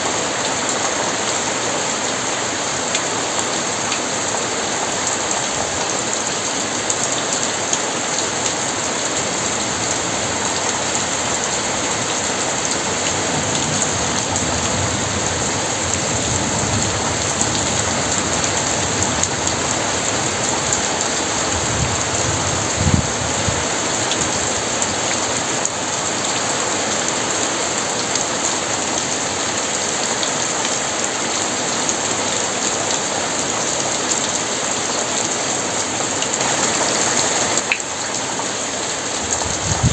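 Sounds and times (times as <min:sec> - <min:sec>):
very heavy rain pouring: 0:00.0 - 0:39.9
low rumble of thunder: 0:11.3 - 0:24.3, 0:39.2 - 0:39.9.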